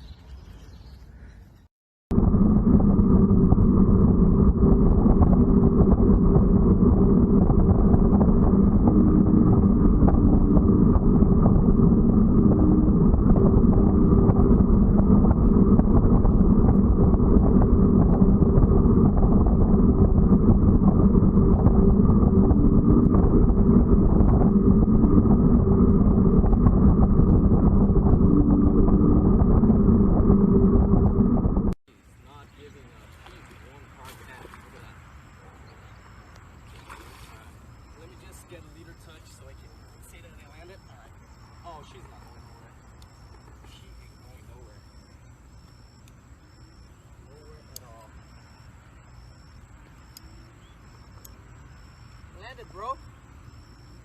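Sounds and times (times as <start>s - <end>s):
steady engine drone: 2.1s - 35.6s.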